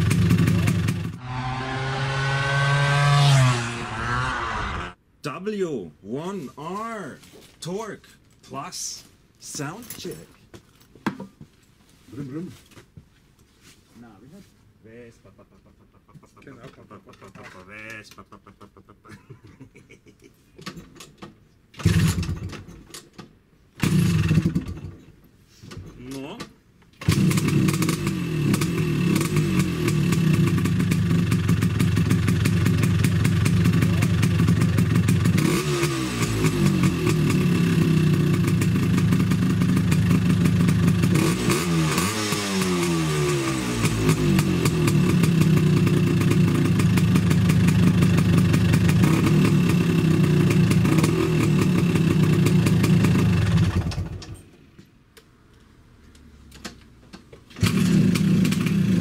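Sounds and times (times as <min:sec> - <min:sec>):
scooter engine idling and revving: 0:00.0 - 0:05.0, 0:21.8 - 0:22.6, 0:23.8 - 0:24.9, 0:27.0 - 0:54.4, 0:57.5 - 0:59.0.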